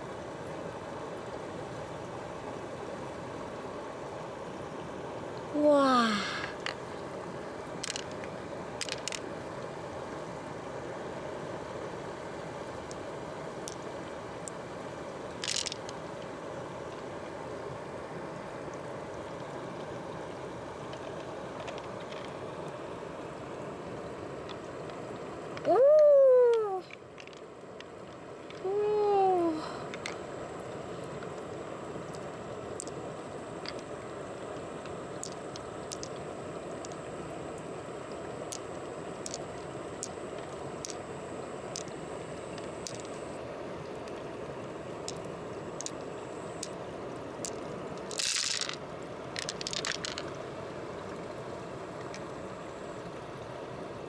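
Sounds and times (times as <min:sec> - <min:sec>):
flowing water: 0:00.0 - 0:54.0
small sharp clicks: 0:34.8 - 0:36.2, 0:38.5 - 0:39.4, 0:45.1 - 0:46.8.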